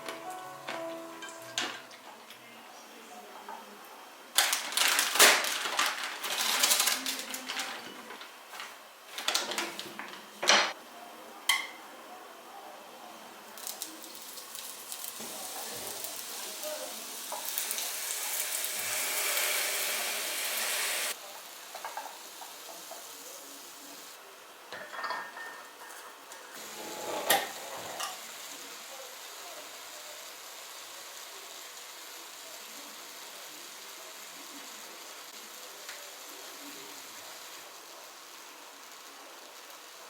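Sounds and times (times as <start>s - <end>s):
dishes and utensils clattering: 0.0s - 2.2s, 24.7s - 26.2s
steady hiss: 13.0s - 24.7s, 26.1s - 40.0s.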